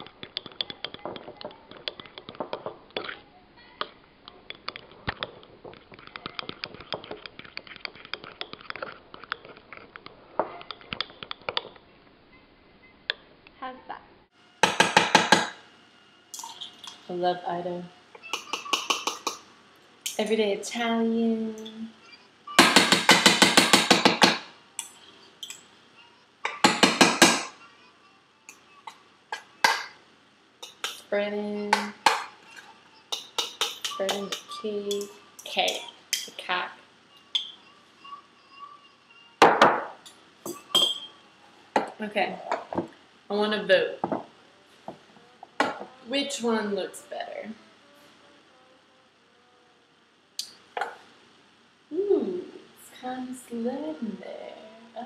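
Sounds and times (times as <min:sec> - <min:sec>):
spoon stirring batter in bowl: 0:04.5 - 0:11.6, 0:30.6 - 0:31.0, 0:31.7 - 0:36.6
utensil tapping on baking dish: 0:18.4 - 0:19.4, 0:33.1 - 0:35.1
spoon clicking against bowl: 0:33.1 - 0:36.3.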